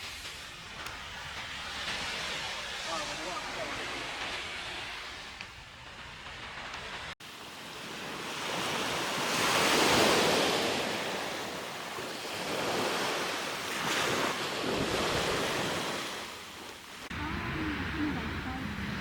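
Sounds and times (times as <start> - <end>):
sea waves washing onto beach: 0.0 - 17.4
wind on microphone: 7.9 - 16.3.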